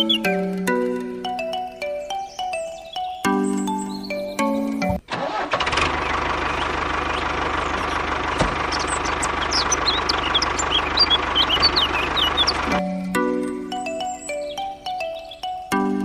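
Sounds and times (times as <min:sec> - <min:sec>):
motor running with low pulse: 0:05.9 - 0:12.8.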